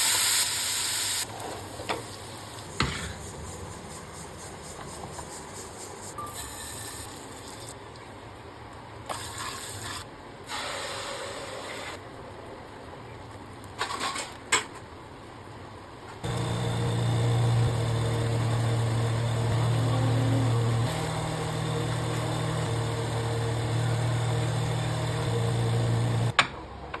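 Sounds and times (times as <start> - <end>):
kitchen appliance motor humming: 16.2 - 26.4.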